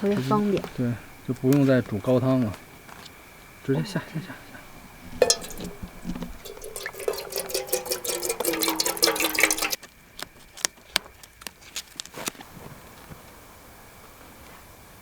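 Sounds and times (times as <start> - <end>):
liquid dripping: 5.0 - 9.8
liquid pouring into a pot: 5.1 - 9.8.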